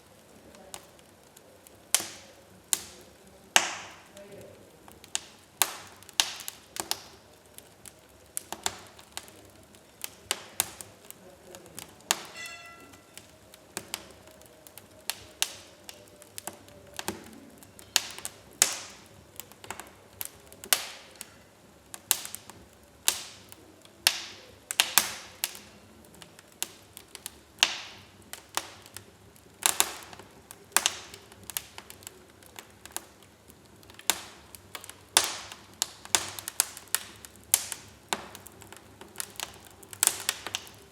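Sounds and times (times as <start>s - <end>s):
wood fire crackling: 0.0s - 40.9s
brief high whistle: 12.3s - 13.0s.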